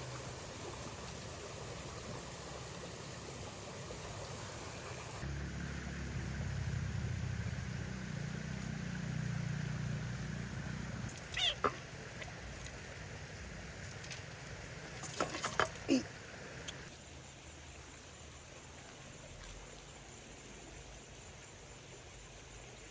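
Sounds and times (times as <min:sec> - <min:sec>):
short falling animal cries: 0:11.3 - 0:11.8.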